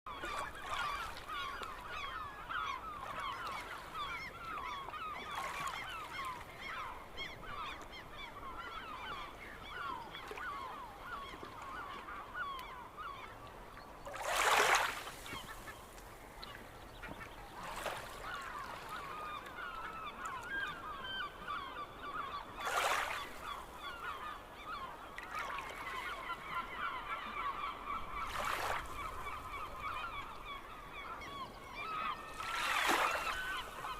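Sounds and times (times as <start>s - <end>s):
gulls calling: 0.1s - 33.9s.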